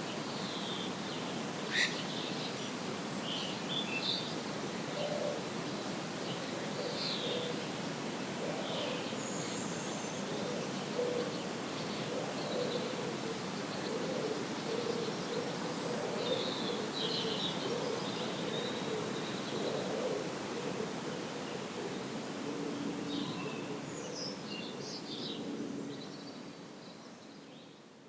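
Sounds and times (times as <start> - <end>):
low cooing or hooting: 12.1 - 22.2.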